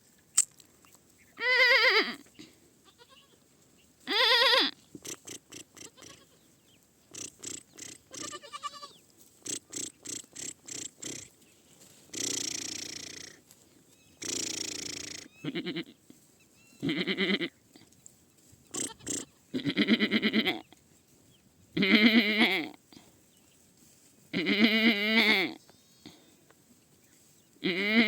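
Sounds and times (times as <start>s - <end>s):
young goat bleating: 1.3s - 3.4s, 4.0s - 6.5s, 7.1s - 11.3s, 12.1s - 17.6s, 18.7s - 20.8s, 21.8s - 22.9s, 24.3s - 26.2s, 27.6s - 28.0s
short scratchy noises: 4.9s - 6.4s, 7.1s - 11.4s, 12.0s - 13.4s, 18.7s - 20.5s.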